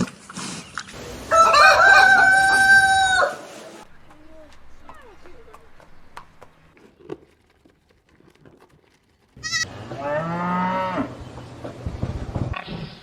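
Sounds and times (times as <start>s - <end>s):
farm animal call: 1.0s - 6.3s, 9.4s - 11.2s.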